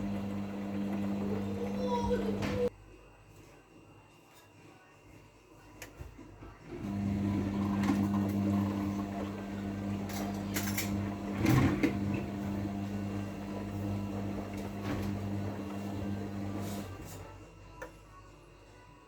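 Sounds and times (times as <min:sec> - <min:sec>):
washing machine motor hum: 0:00.0 - 0:02.7, 0:06.6 - 0:17.3.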